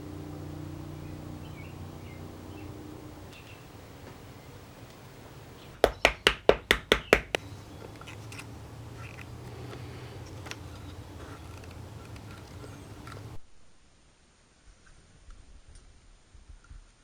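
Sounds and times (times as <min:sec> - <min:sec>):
low background hum: 0:00.0 - 0:13.4
sharp ringing knocks: 0:05.8 - 0:08.1.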